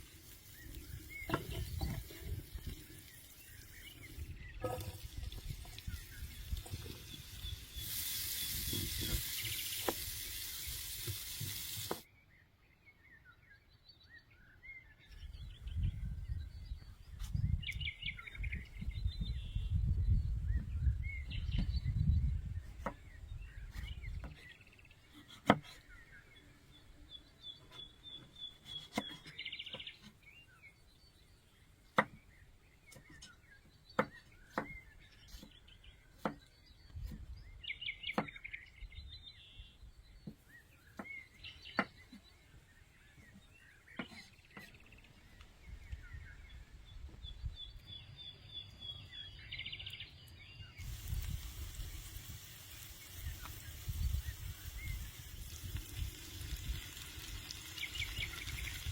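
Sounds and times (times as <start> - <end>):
loud steady hiss: 0.0 - 12.1, 50.8 - 58.9
small birds chirping: 0.0 - 58.9.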